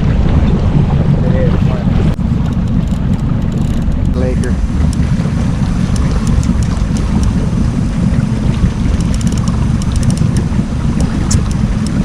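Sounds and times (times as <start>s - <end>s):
boat motor rumbling: 0.0s - 12.0s
wind buffeting microphone: 0.0s - 12.0s
faint ticks: 8.9s - 12.0s.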